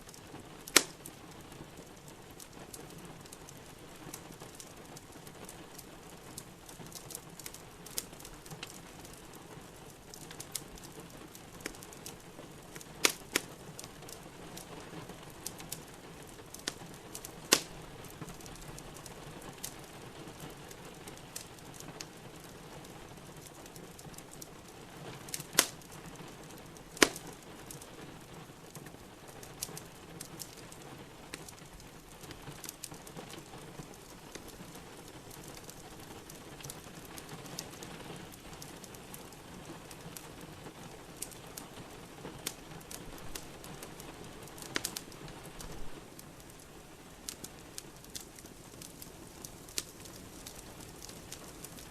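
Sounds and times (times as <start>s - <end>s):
rain pattering: 0.0s - 51.9s
wood fire crackling: 0.0s - 51.9s
sharp loud pops: 27.0s - 27.2s.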